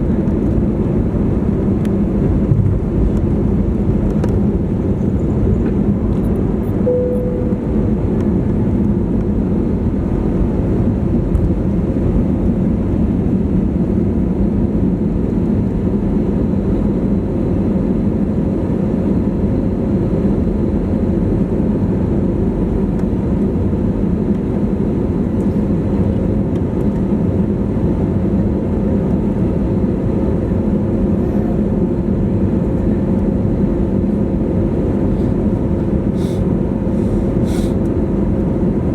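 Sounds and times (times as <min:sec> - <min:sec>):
faint steady hum: 0:00.0 - 0:10.4
airplane engine rumble: 0:00.0 - 0:38.9.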